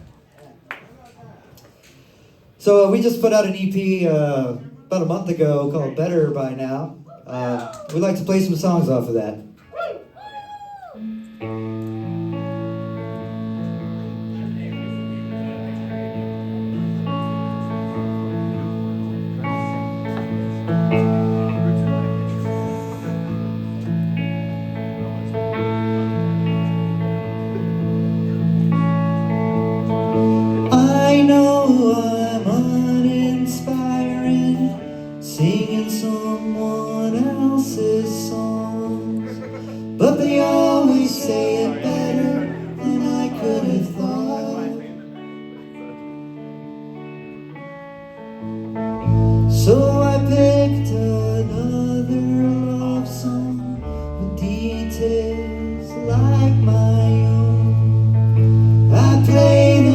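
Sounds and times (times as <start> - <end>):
person singing: 10.6 - 13.0, 19.7 - 23.5, 29.9 - 45.8, 49.0 - 59.9
live band playing: 10.8 - 59.9
heavy bass notes: 11.0 - 34.8, 48.8 - 59.9.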